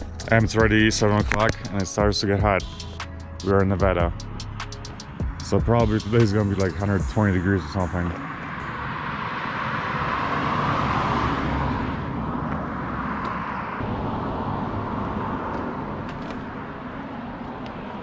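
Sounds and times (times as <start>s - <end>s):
vehicle rumbling past: 4.2s - 18.0s.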